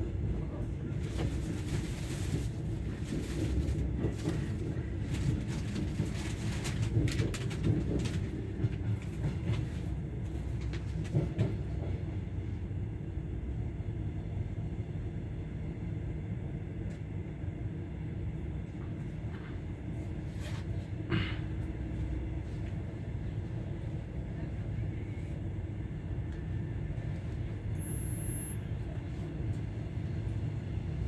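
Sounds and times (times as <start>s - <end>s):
train rumbling on track: 0.0s - 31.0s.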